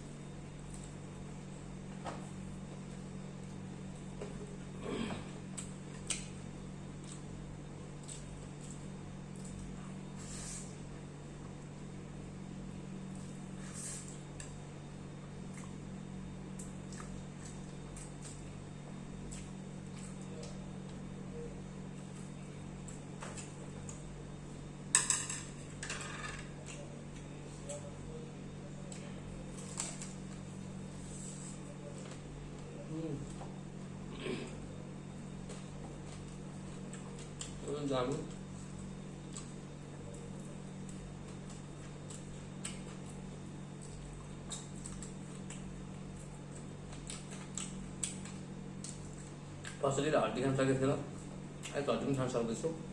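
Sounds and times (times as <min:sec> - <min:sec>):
steady low hum: 0:00.0 - 0:52.9
chewing clicks and smacks: 0:16.5 - 0:18.6, 0:19.2 - 0:21.0, 0:35.4 - 0:49.8.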